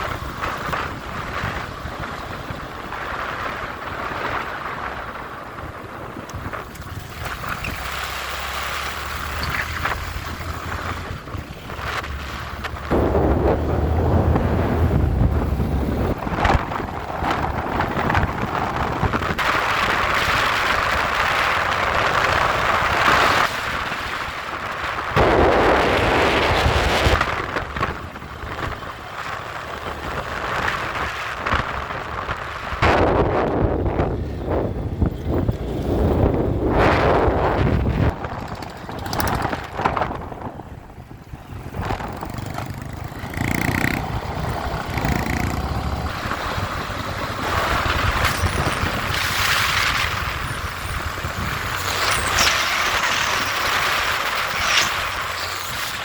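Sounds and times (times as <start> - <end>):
motorcycle engine hum: 0.0 - 56.0
wind buffeting microphone: 0.0 - 56.0.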